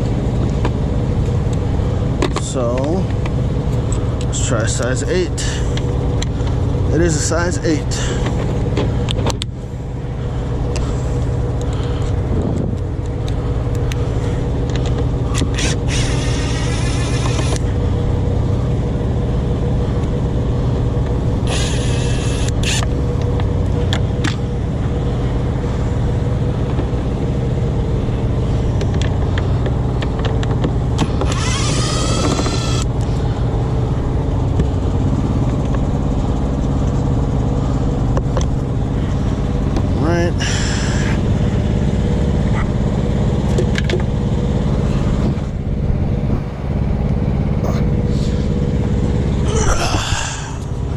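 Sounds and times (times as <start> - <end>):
truck engine idling: 0.0 - 50.9
cordless drill whirring: 15.3 - 17.7, 21.5 - 22.9, 31.0 - 32.9.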